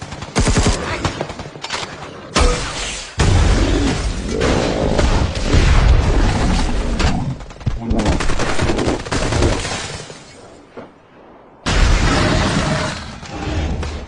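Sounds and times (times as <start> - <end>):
rapid gunfire: 0.0 - 3.8, 4.5 - 10.0.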